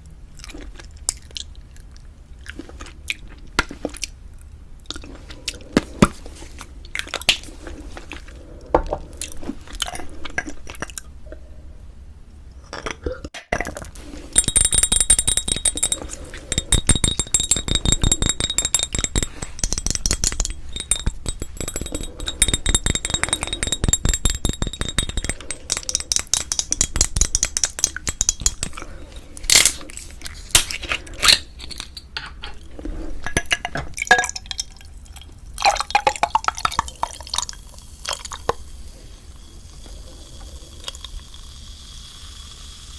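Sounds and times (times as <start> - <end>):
tableware clinking: 14.3 - 28.9.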